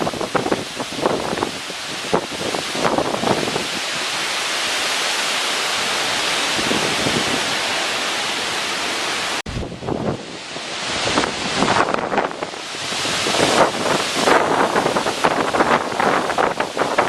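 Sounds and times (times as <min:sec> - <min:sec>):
wind buffeting microphone: 0:00.0 - 0:04.3, 0:06.3 - 0:07.8, 0:09.5 - 0:17.0
wind and rain rushing: 0:00.0 - 0:17.0.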